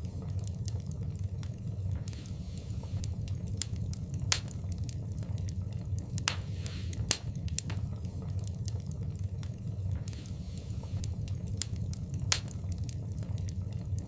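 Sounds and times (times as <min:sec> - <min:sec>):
fire crackling and popping: 0:00.0 - 0:14.0
flames rumbling: 0:00.0 - 0:14.0
brief fire hiss: 0:06.3 - 0:07.3.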